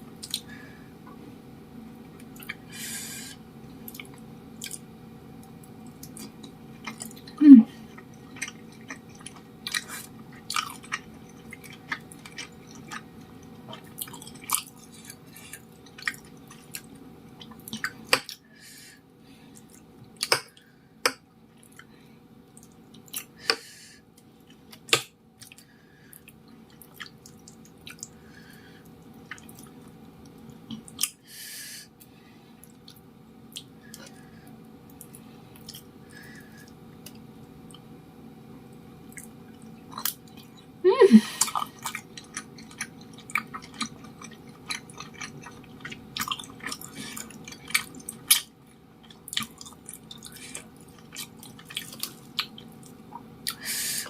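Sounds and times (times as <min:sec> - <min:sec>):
chewing with wet mouth clicks: 0:00.2 - 0:00.5, 0:02.2 - 0:02.6, 0:03.8 - 0:18.4, 0:22.5 - 0:23.3, 0:24.4 - 0:28.2, 0:28.8 - 0:31.2, 0:32.6 - 0:34.1, 0:34.9 - 0:35.9, 0:38.7 - 0:40.7, 0:41.4 - 0:53.6.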